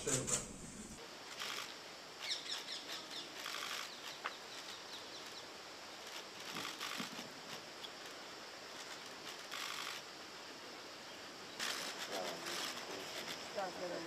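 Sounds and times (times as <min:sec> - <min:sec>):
small birds chirping: 0:02.2 - 0:06.2.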